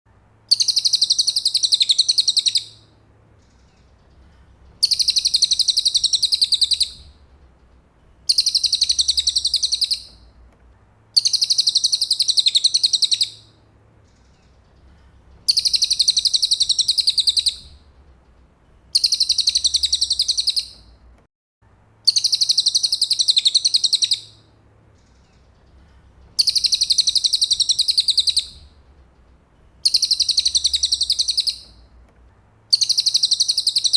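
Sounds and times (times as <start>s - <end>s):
bird trilling: 0.5s - 2.8s, 4.8s - 7.1s, 8.3s - 10.2s, 11.2s - 13.5s, 15.5s - 17.7s, 19.0s - 20.9s, 22.1s - 24.4s, 26.4s - 28.7s, 29.8s - 31.8s, 32.7s - 33.9s.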